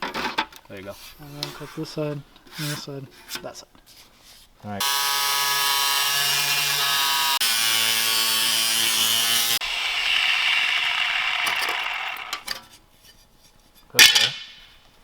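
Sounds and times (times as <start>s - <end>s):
power tool cutting metal pipe: 4.8s - 12.5s.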